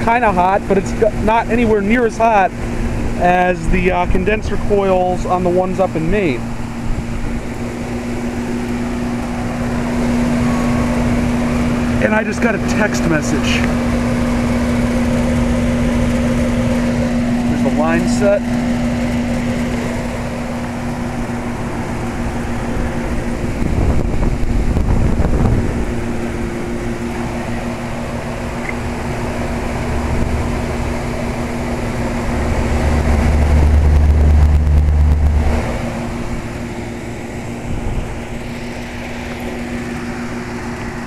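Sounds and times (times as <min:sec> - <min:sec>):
compressor hum: 0:00.0 - 0:41.0
condenser fan rushing: 0:00.0 - 0:41.0
deep low rumble: 0:13.1 - 0:40.2.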